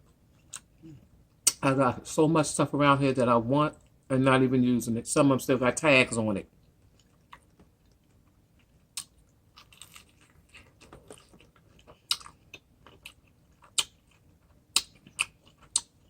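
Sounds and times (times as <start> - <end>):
person chewing crunchy food: 6.8 - 16.0.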